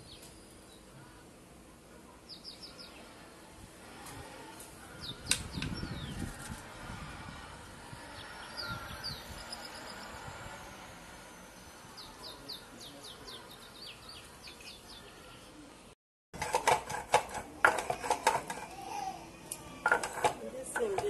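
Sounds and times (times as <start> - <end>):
small birds chirping: 2.1 - 3.3, 4.8 - 10.4, 11.4 - 15.8.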